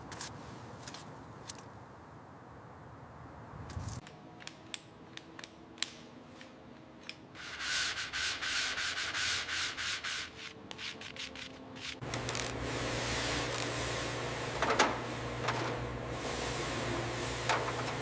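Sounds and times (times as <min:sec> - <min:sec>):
abrasive rubbing on a surface: 0:07.4 - 0:12.0.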